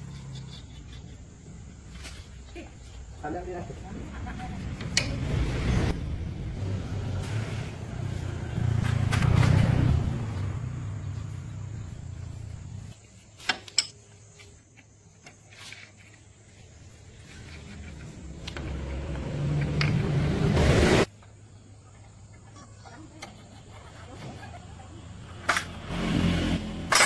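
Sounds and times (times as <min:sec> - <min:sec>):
vehicle engine rumble: 0:03.3 - 0:13.0, 0:16.6 - 0:21.1.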